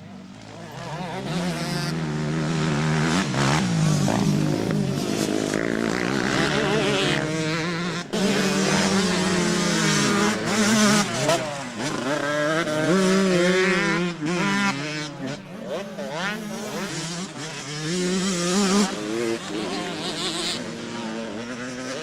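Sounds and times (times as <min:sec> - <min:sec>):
motocross engines revving: 0:00.0 - 0:22.0.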